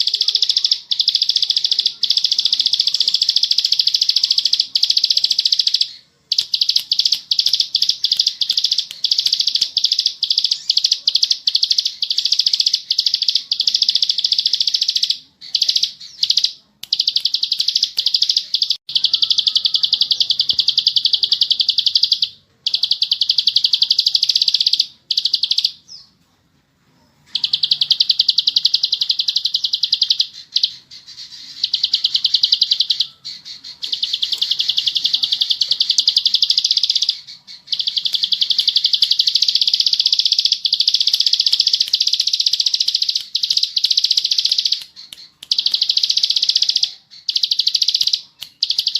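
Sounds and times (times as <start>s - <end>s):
bird trilled chatter: 0.0s - 26.0s, 27.3s - 48.9s.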